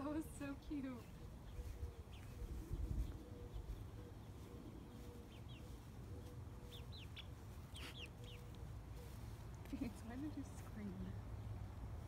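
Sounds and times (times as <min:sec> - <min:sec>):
faint high bird chirps: 0:01.0 - 0:09.4.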